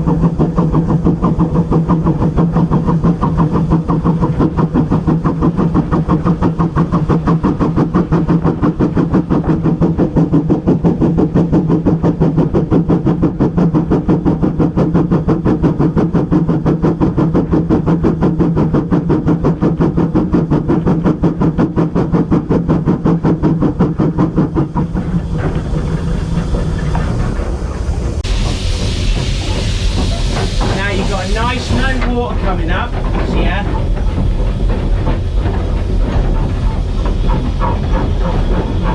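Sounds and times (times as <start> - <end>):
locomotive engine hum: 0.0 - 38.9
fast pulsing beat: 23.6 - 38.9.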